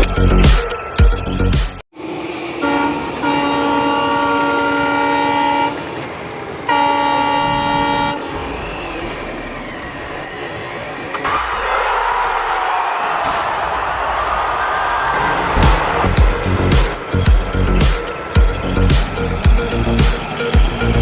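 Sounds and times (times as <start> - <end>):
horn blasts: 2.4 - 6.0, 6.7 - 8.6.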